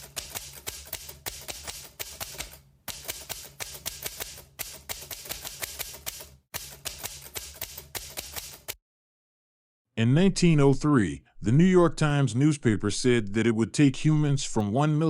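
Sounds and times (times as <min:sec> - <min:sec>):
typewriter keys clacking: 0:00.0 - 0:08.8.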